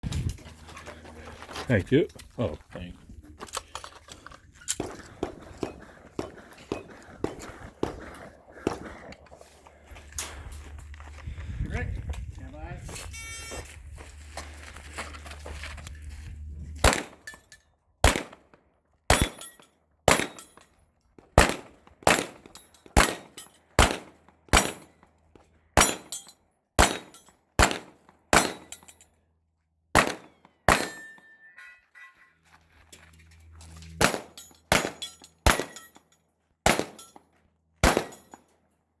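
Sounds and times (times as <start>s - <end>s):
pistol shots: 16.8s - 17.3s, 18.0s - 18.4s, 19.1s - 19.5s, 20.1s - 20.4s, 21.4s - 24.9s, 25.8s - 26.2s, 26.8s - 28.8s, 30.0s - 31.1s, 34.0s - 35.9s, 36.7s - 37.2s, 37.8s - 38.4s.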